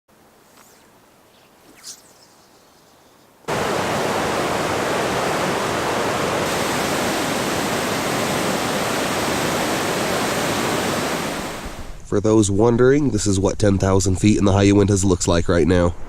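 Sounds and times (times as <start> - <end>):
faint high chirp: 0.6 - 3.4
loud steady rushing noise: 3.5 - 11.8.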